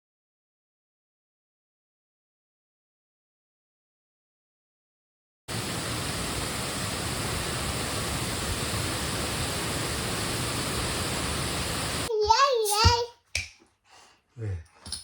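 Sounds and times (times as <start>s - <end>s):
waterfall roar: 5.5s - 12.1s.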